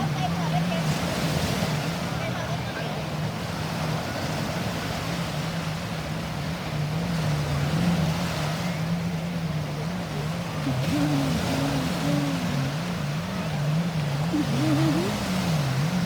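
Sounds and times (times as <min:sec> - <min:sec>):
motorboat engine running: 0:00.0 - 0:16.0
wind and water rushing: 0:00.0 - 0:16.0
higher engine tone: 0:07.0 - 0:16.0.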